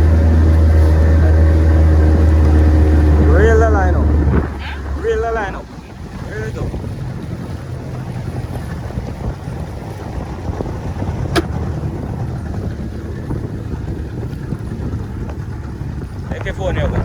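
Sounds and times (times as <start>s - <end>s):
boat motor rumbling: 0.0s - 17.0s
wind buffeting microphone: 0.0s - 17.0s
sharp tap: 11.4s - 11.6s.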